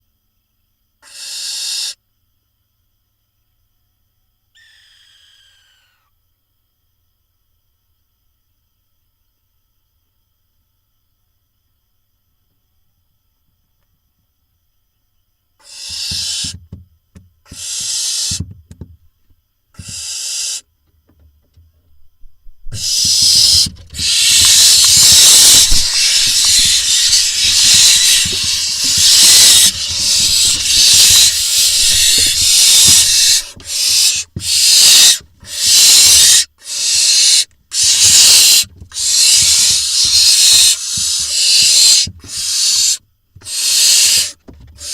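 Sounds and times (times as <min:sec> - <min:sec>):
owl chicks hissing: 0:01.0 - 0:02.0, 0:04.6 - 0:06.1, 0:15.6 - 0:16.6, 0:17.5 - 0:18.5, 0:19.8 - 0:20.6, 0:22.7 - 0:44.9.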